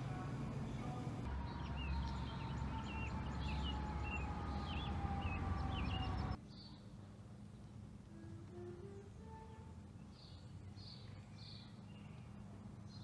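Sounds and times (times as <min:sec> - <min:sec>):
low outdoor rumble: 0:00.0 - 0:06.4.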